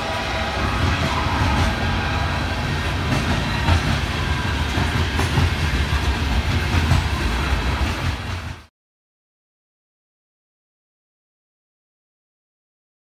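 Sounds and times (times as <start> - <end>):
train wheels rumbling on rail: 0.0 - 8.7.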